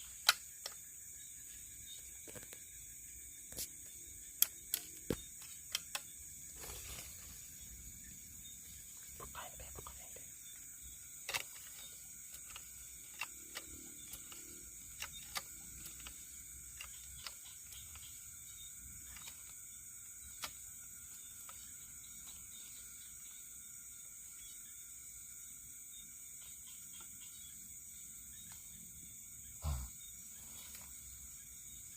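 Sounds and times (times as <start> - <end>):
crickets chirring: 0.0 - 31.9
sharp clicks and snaps: 0.2 - 0.8, 4.3 - 6.1, 11.2 - 16.2.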